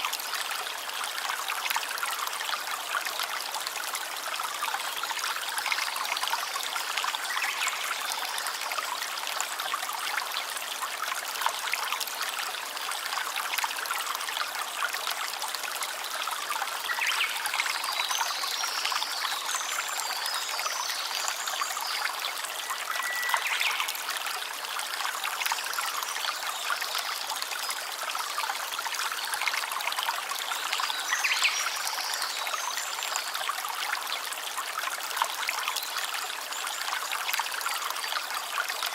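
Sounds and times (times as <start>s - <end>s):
stream water trickling: 0.0s - 38.9s.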